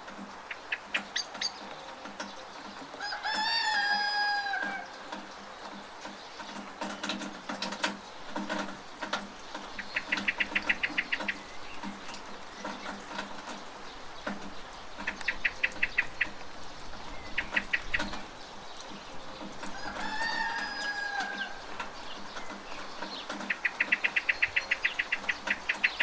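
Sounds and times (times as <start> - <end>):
drips from rain gutter: 0.0 - 26.0
steady rain: 0.0 - 26.0
small bird chirping rapidly: 0.5 - 2.9, 9.4 - 26.0.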